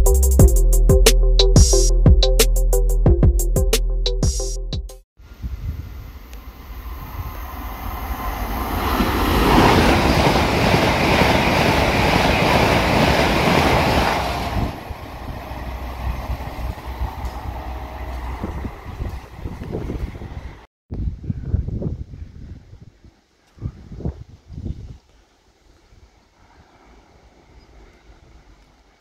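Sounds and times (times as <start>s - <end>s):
train passing at speed: 5.9s - 20.7s.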